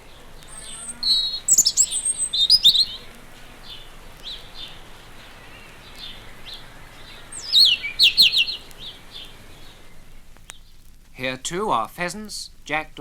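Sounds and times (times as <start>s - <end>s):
faint high bird notes: 0.0s - 10.4s
bird sweeping song phrase: 0.0s - 10.7s.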